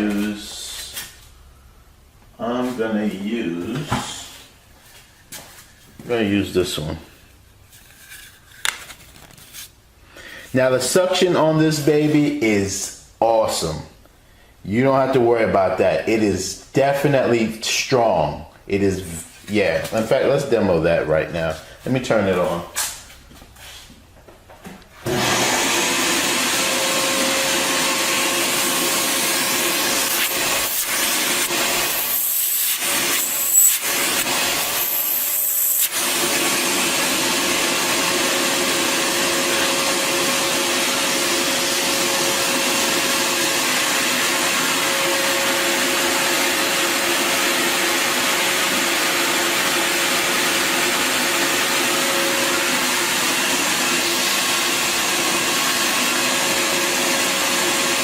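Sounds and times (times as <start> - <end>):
vacuum cleaner motor running: 25.0 - 58.0.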